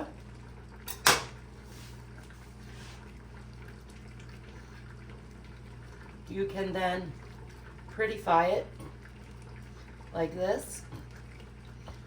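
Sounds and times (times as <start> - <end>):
low electrical hum: 0.0 - 12.0
tableware clink: 0.9 - 1.4.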